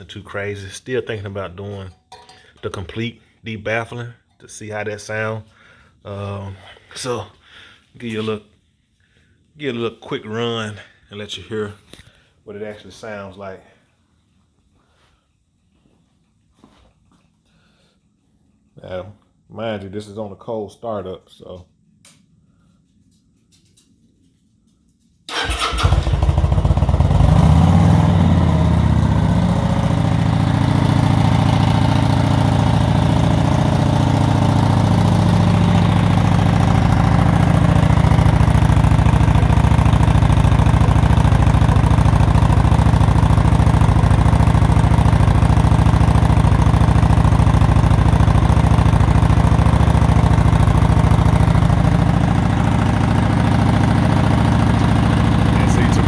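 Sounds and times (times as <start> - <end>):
motorcycle engine starting and idling: 25.3 - 56.0.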